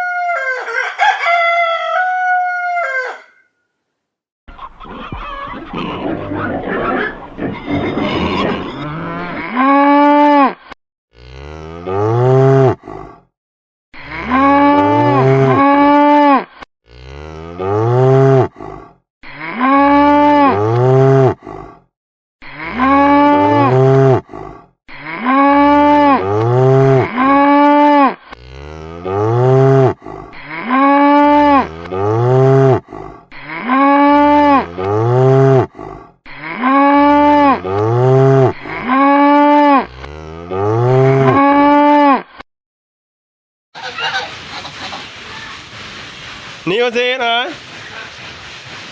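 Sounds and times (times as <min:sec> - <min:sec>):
cow mooing: 0:11.2 - 0:12.9, 0:14.0 - 0:18.6, 0:19.3 - 0:21.4, 0:22.4 - 0:24.3, 0:24.9 - 0:42.2.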